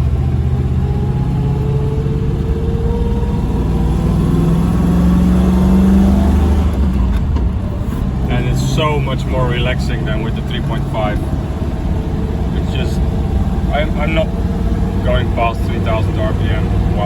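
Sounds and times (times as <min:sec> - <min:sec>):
engine pulling under load: 0:00.0 - 0:17.0.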